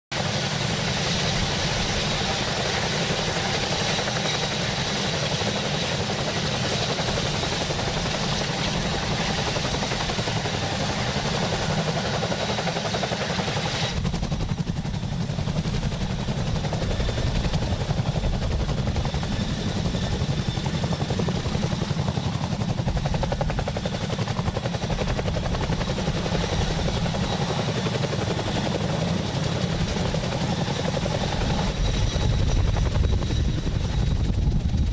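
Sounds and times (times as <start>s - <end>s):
helicopter rotor chop: 0.1s - 34.9s
high turbine whine: 22.5s - 34.9s.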